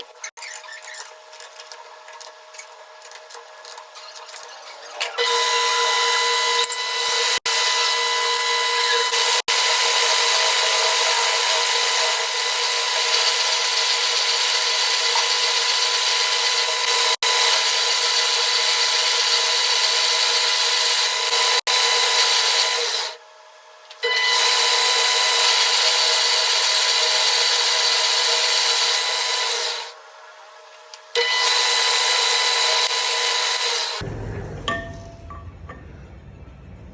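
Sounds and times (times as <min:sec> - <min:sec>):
metal lathe scraping and whining: 0:03.8 - 0:23.2, 0:24.0 - 0:29.9, 0:31.2 - 0:34.0.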